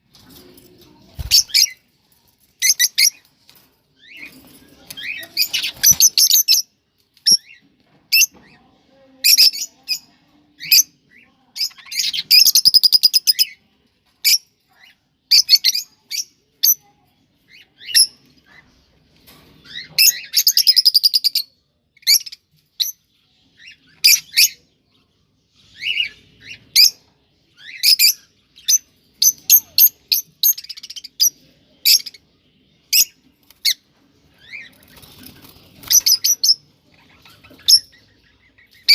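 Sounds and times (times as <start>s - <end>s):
cockatiels chirping and warbling: 2.6s - 8.6s, 17.5s - 19.0s, 19.6s - 24.7s, 25.6s - 32.2s, 32.9s - 38.9s.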